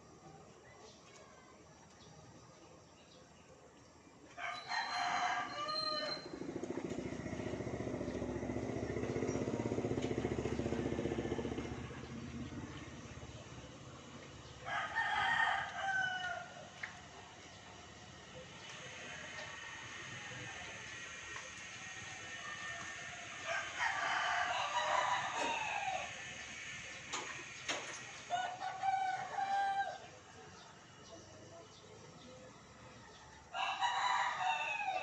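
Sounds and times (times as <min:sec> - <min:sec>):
rooster crowing: 0:04.4 - 0:06.4, 0:14.6 - 0:16.7, 0:22.1 - 0:26.4, 0:28.2 - 0:30.2, 0:33.5 - 0:35.0.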